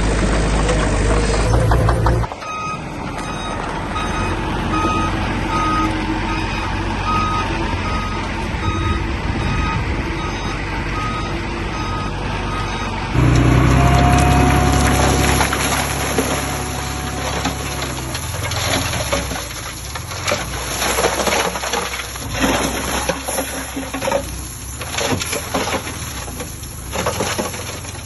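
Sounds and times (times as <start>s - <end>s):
louder engine: 0.0s - 20.4s
diesel engine running: 0.0s - 28.0s
reversing alarm beeps: 2.4s - 13.0s.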